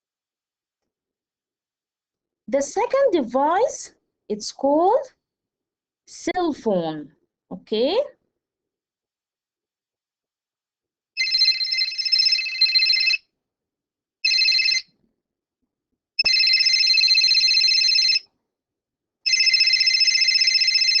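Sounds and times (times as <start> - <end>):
cell phone ringtone: 11.2 - 13.2, 14.2 - 14.9, 16.2 - 18.2, 19.3 - 21.0.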